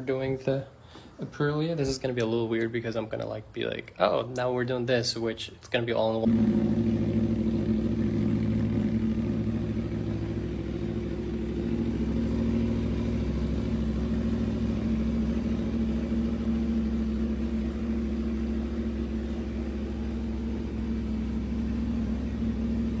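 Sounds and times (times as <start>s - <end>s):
motorcycle engine idling: 6.2s - 23.0s.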